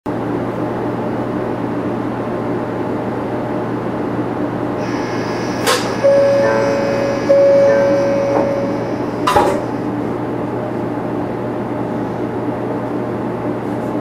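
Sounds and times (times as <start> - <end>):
steady inverter tone: 4.8 - 10.8
onboard equipment hum: 4.8 - 11.0
inverter high whine: 4.8 - 12.2.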